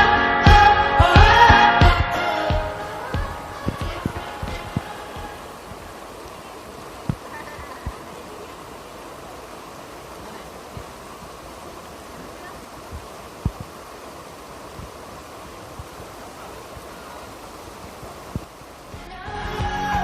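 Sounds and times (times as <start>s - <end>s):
rushing outdoor noise: 0.0s - 20.0s
soft low thumps: 0.6s - 6.0s, 12.8s - 13.9s.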